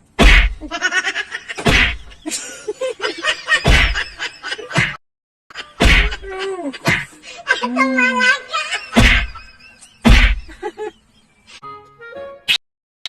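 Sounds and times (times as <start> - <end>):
loud whacks: 0.2 - 0.7, 1.6 - 2.2, 3.6 - 4.1, 5.8 - 7.1, 8.9 - 9.4, 10.0 - 10.5.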